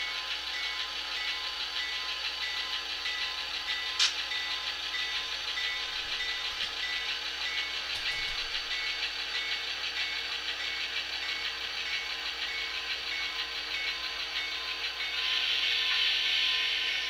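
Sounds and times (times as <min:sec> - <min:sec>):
diesel engine sound from small speaker: 0:00.0 - 0:17.0.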